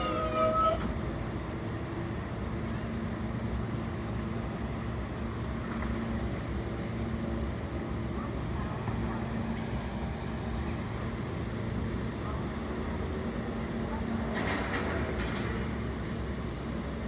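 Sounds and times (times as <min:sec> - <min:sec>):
train motor whine: 0:00.0 - 0:01.4.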